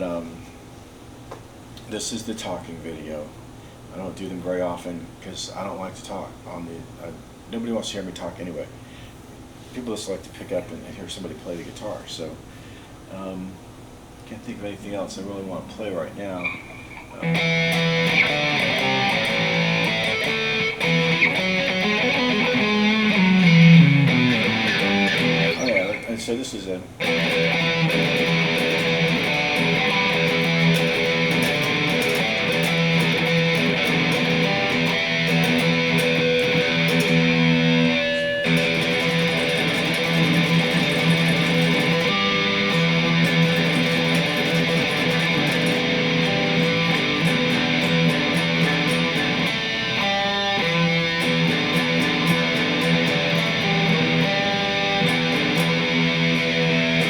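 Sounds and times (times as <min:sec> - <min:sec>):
electric guitar riffs: 0:16.3 - 0:57.0.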